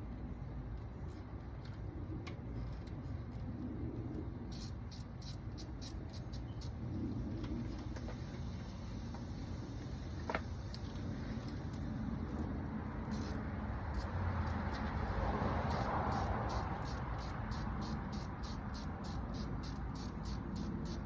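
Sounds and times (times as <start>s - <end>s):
light clicks of hand work on engine parts: 0.7s - 3.5s.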